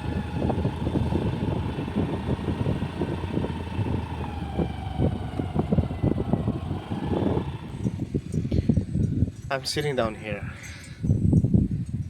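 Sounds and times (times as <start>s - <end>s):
passing vehicle engine hum: 0.0s - 9.5s
wind buffeting microphone: 0.0s - 12.0s.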